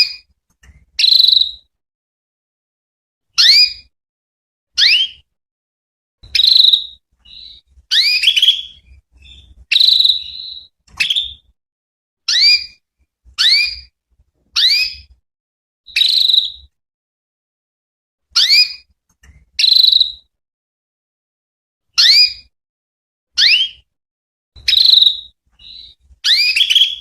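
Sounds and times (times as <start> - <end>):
canary chirping: 0.0 - 1.7, 3.4 - 3.9, 4.8 - 5.2, 6.2 - 11.5, 12.3 - 12.8, 13.4 - 13.9, 14.6 - 15.1, 15.9 - 16.7, 18.4 - 20.3, 23.4 - 23.8, 24.6 - 27.0.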